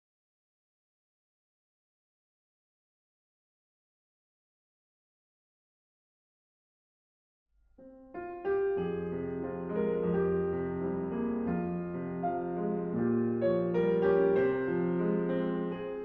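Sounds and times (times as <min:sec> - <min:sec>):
slow piano chords with melody: 0:07.8 - 0:16.0.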